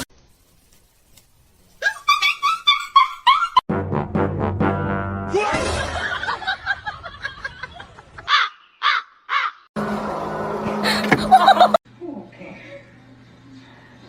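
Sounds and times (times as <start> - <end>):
harsh caw-like animal calls: 8.3 - 9.7.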